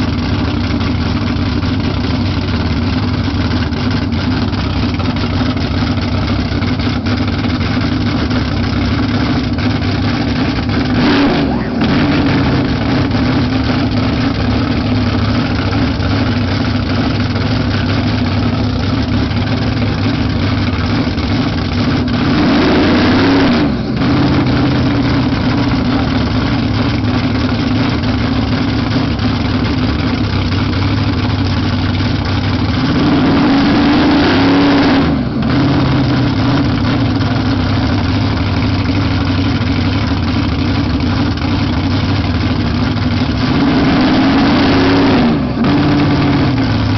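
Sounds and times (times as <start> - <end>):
drag car engine idling and revving: 0.0 - 46.9.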